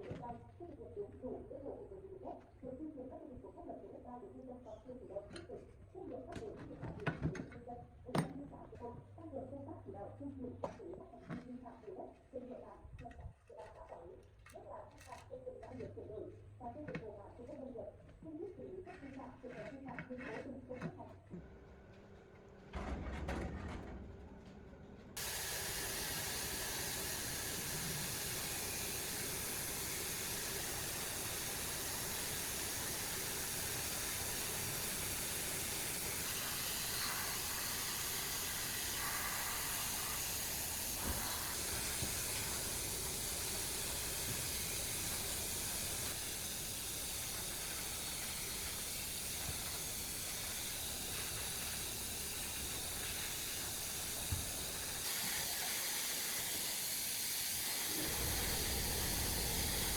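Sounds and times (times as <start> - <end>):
compressed air hissing: 25.2 - 59.9.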